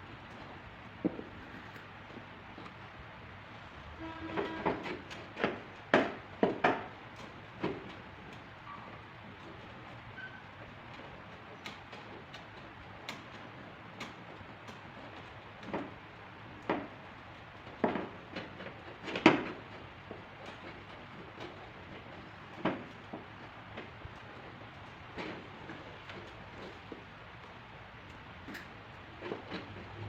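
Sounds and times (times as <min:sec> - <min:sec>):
tools tapping car body panel: 0:04.5 - 0:08.4.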